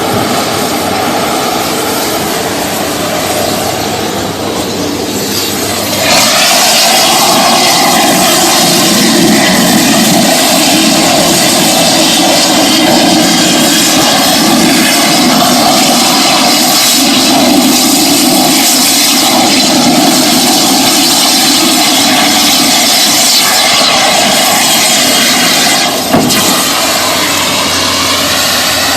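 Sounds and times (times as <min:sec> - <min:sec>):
cutting torch hissing: 0:00.0 - 0:28.9
sharp pop: 0:26.1 - 0:26.9.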